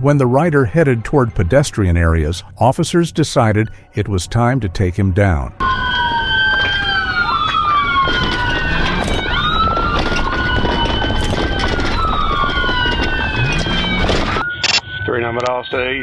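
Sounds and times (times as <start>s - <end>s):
police sirens wailing: 2.9s - 16.0s
road noise rushing: 5.6s - 16.0s.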